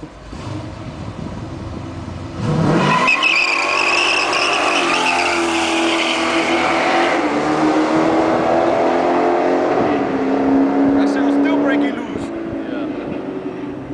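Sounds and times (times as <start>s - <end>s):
car engine revving: 0.0s - 13.9s
tires squealing: 2.4s - 9.1s.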